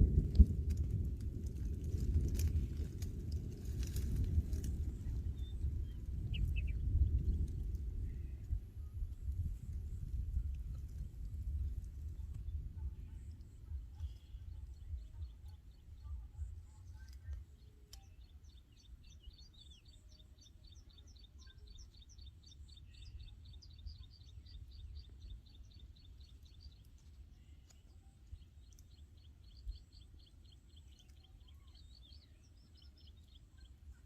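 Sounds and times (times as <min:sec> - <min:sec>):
faint low rumble: 0:00.0 - 0:34.0
small bird chirping: 0:05.0 - 0:08.2, 0:12.4 - 0:34.0.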